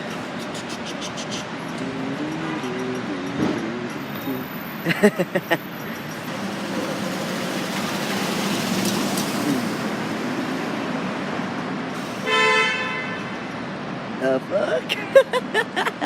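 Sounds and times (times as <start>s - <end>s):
road traffic: 0.0s - 16.0s
car horn: 12.2s - 13.5s.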